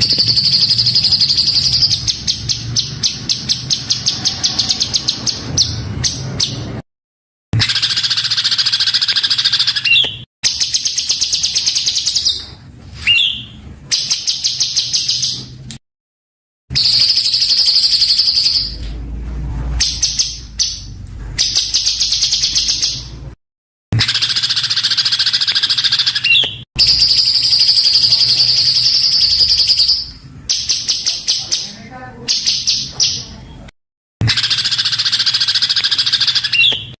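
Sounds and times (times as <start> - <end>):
songbird singing harsh trills: 0.0 - 6.7, 7.6 - 12.4, 16.7 - 18.8, 24.0 - 33.4, 34.2 - 37.0.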